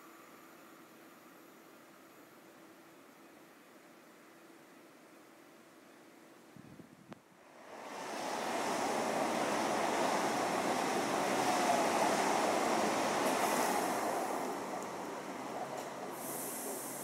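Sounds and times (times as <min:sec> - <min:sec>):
train rushing on rails: 0:07.4 - 0:17.0.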